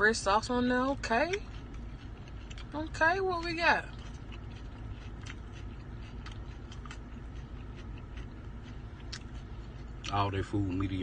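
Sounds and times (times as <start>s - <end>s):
low steady hum: 0.0s - 11.0s
person eating: 1.3s - 2.8s, 3.9s - 10.9s.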